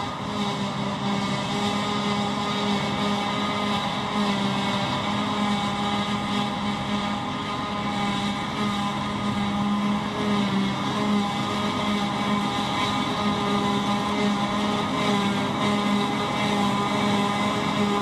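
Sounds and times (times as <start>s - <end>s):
farm machinery engine running: 0.0s - 18.0s.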